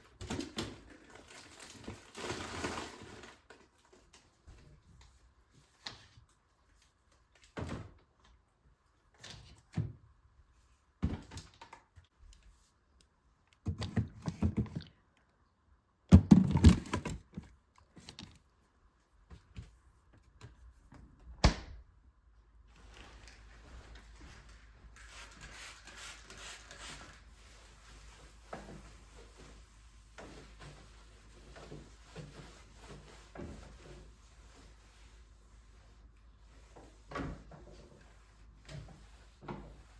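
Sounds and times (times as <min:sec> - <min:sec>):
objects knocking and thudding: 0:13.6 - 0:15.0, 0:16.1 - 0:18.2.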